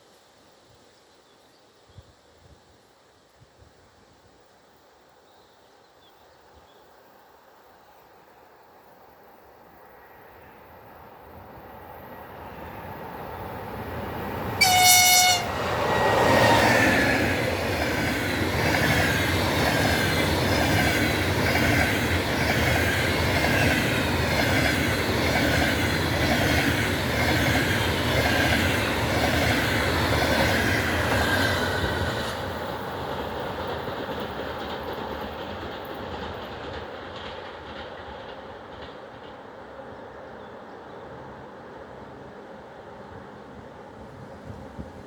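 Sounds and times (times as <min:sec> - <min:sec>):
electric locomotive approaching: 0:09.7 - 0:45.0
train horn blast: 0:14.6 - 0:15.9
wheels clacking over rail joints: 0:14.6 - 0:39.8.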